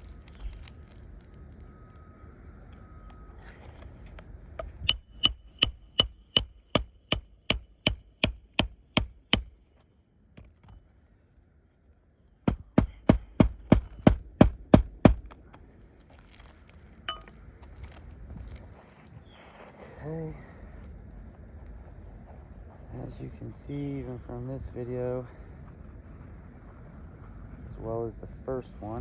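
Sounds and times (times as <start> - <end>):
hammer driving nails: 4.8 - 9.8, 12.5 - 15.4.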